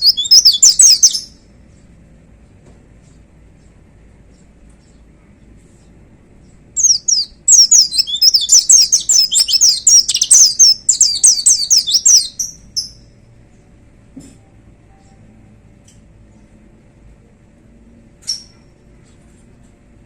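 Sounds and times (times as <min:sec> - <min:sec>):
bird singing fast high notes: 0:00.0 - 0:01.2, 0:06.8 - 0:12.4.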